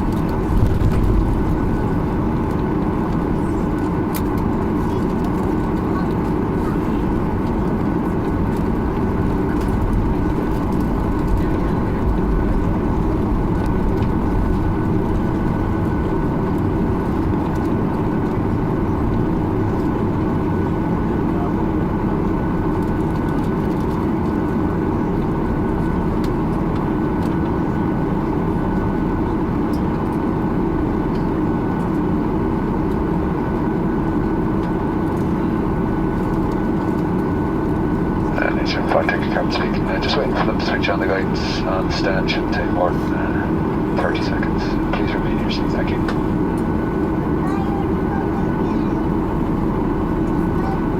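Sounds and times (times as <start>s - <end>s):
cabin air supply hum: 0.0s - 50.9s
jet engines idling: 0.0s - 50.9s
faint steady tones: 37.8s - 50.9s.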